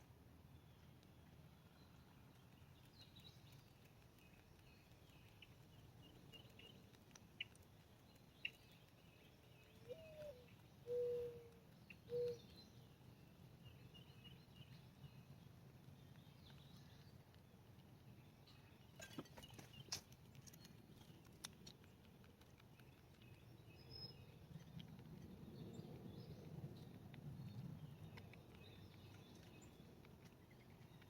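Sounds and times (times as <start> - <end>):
small birds chirping: 0.4 - 31.0
dove cooing: 9.9 - 11.5.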